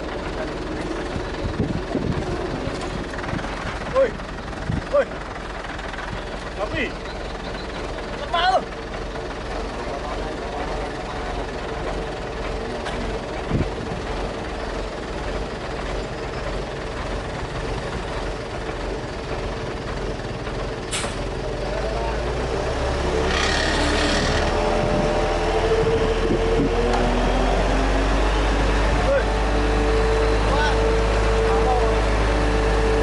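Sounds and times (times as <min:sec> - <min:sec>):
diesel machinery engine running: 0:00.0 - 0:33.0
short hiss: 0:20.9 - 0:21.2.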